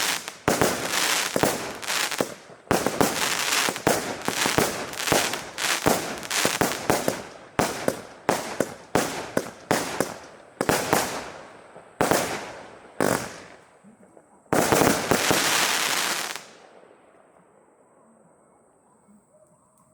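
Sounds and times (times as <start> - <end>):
loud firework hiss: 0.0 - 11.4, 14.6 - 16.6
firework pops with hissing tails: 0.0 - 16.6.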